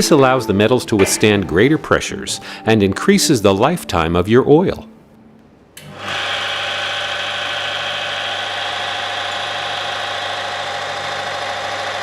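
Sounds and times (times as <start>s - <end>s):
machine motor hum with high whine: 5.8s - 12.0s.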